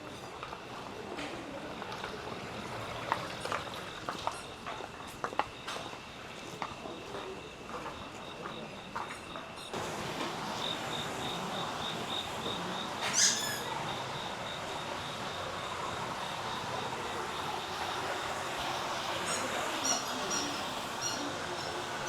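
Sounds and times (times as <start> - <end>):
insect chirping: 3.9 - 22.0
steady hiss: 9.7 - 22.0
loud squeak sliding down: 13.0 - 13.8.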